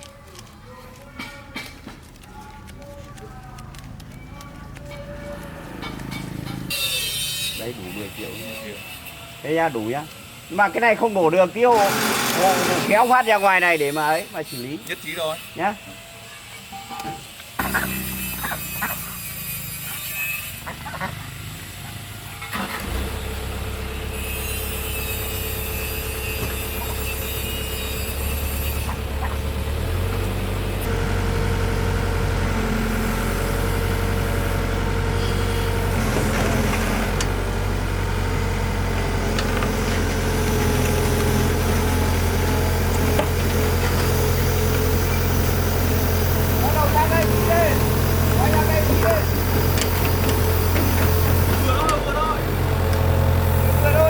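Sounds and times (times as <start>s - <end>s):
truck engine running: 21.2s - 54.0s.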